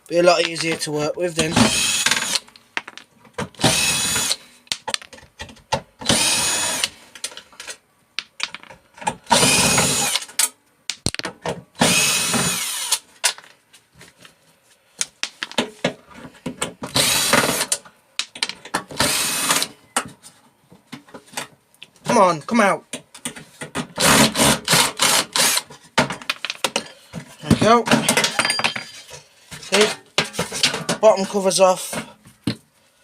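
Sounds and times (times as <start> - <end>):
drill-driver spinning: 1.6 - 2.4, 3.6 - 4.4, 6.0 - 6.9, 9.3 - 10.2, 11.8 - 13.0, 16.9 - 17.7, 19.0 - 19.7, 24.0 - 25.6.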